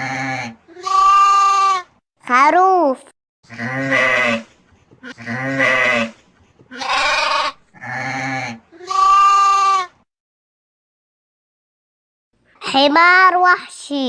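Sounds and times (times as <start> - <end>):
sheep bleating: 0.0 - 1.8, 3.5 - 4.4, 5.0 - 10.0.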